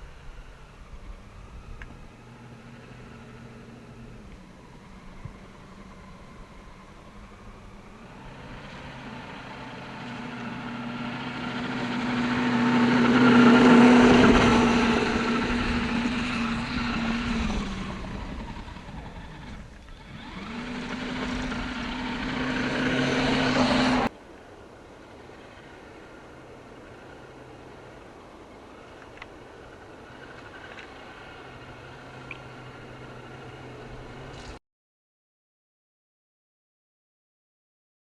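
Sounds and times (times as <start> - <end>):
electric motor whining: 0.0 - 24.1.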